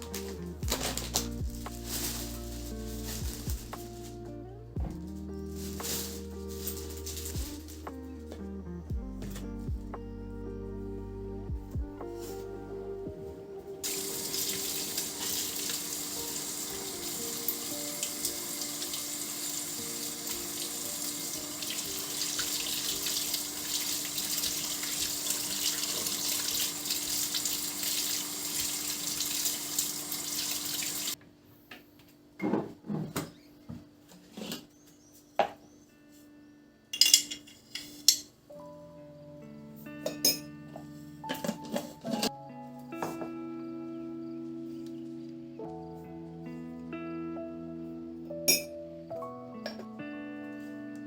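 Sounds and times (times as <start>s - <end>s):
tap water running into sink: 13.9s - 31.2s.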